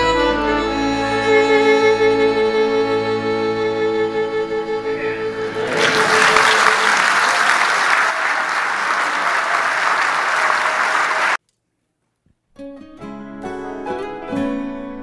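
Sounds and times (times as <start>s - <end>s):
plucked-string music: 0.0s - 5.6s
audience applauding: 5.0s - 11.4s.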